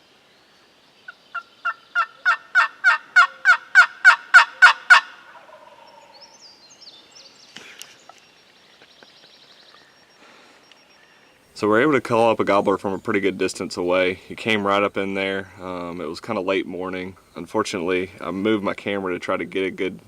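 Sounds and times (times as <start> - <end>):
turkey yelping: 1.3 - 6.1
faint high bird chirps: 5.5 - 11.6.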